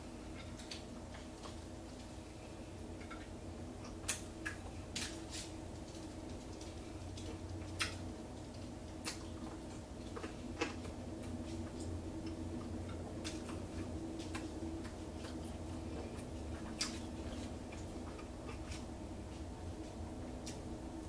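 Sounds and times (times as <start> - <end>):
steady low hum: 0.0 - 21.0
person chewing with wet smacks: 3.0 - 20.7.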